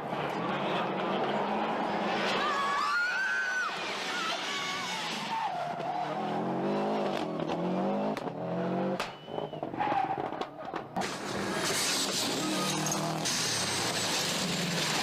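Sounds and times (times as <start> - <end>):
tyres skidding: 0.0 - 15.0
rally car engine revving hard: 3.8 - 10.4.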